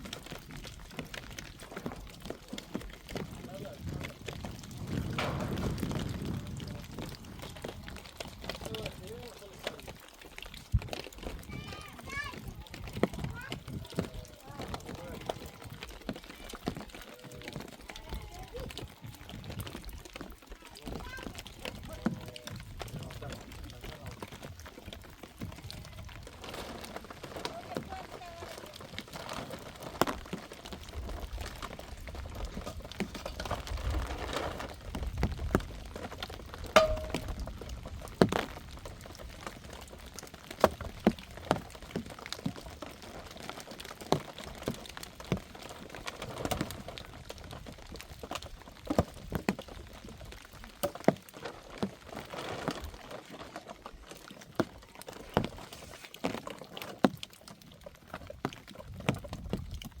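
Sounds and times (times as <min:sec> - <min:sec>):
rainwater dripping and spattering: 0:00.0 - 1:00.0
sharp taps and knocks: 0:36.8 - 0:37.6.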